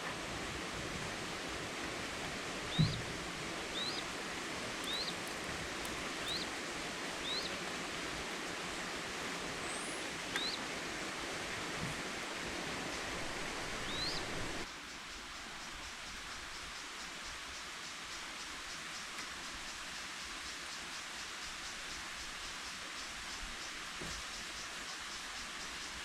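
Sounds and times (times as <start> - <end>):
steady forest hiss: 0.0 - 26.0
low thump: 2.7 - 3.1
bird rising chirp: 3.7 - 4.0, 4.7 - 5.2, 6.0 - 6.5, 7.2 - 7.6, 13.8 - 14.4.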